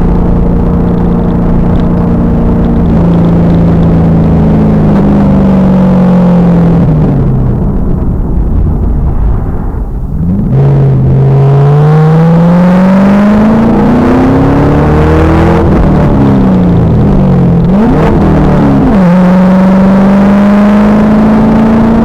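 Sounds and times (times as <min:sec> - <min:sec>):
car engine revving hard: 0:10.2 - 0:22.0.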